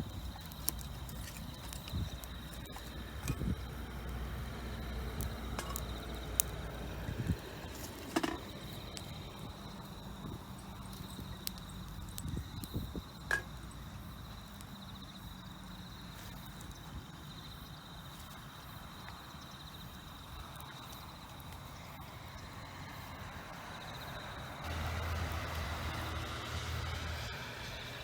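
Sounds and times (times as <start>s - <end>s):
insects trilling: 0.0s - 28.0s
low vehicle rumble: 2.4s - 7.7s, 24.6s - 28.0s.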